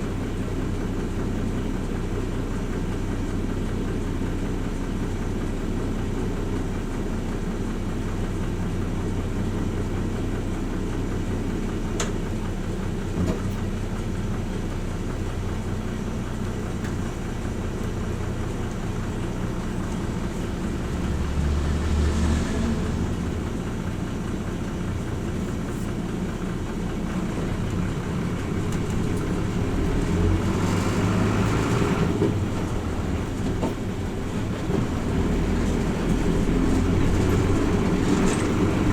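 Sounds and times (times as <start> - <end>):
bus diesel engine: 0.0 - 38.9
road noise: 10.4 - 38.9.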